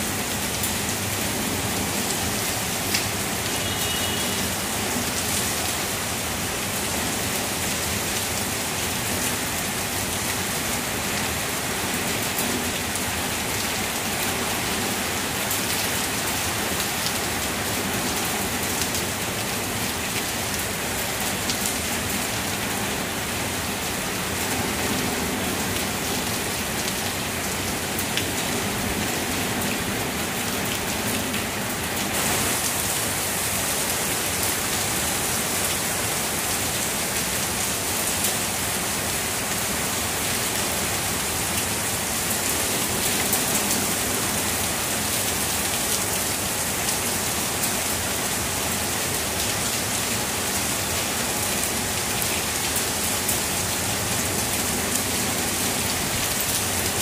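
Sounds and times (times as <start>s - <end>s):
heavy rain on leaves: 0.0s - 57.0s.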